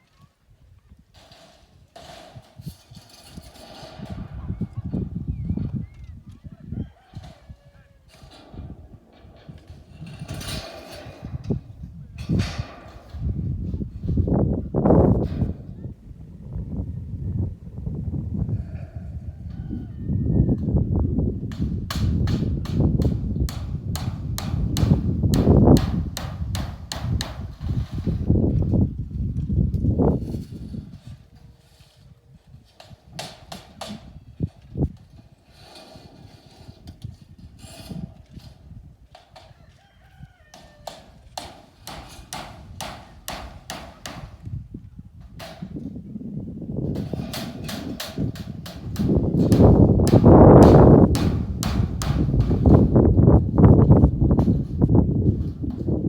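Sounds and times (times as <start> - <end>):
constant low rumble: 0.0 - 56.0
rooster crowing: 6.4 - 8.1, 19.1 - 20.6, 39.4 - 41.2
steady hammering: 21.5 - 27.6, 41.4 - 44.4, 47.0 - 53.0.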